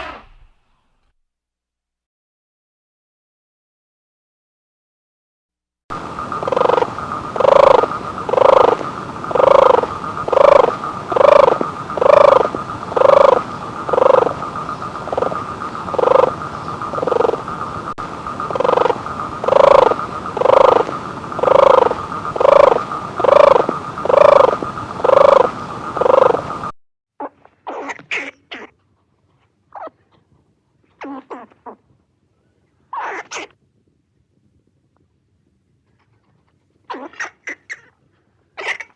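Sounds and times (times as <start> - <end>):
steady high hum: 5.9 - 26.8
animal calling: 6.3 - 28.8, 31.0 - 31.9, 32.9 - 33.5, 36.9 - 38.0, 38.6 - 38.9.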